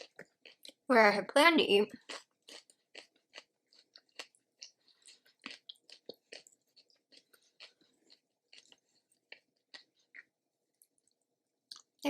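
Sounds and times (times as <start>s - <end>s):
person chewing food: 0.0s - 0.9s, 1.9s - 12.0s.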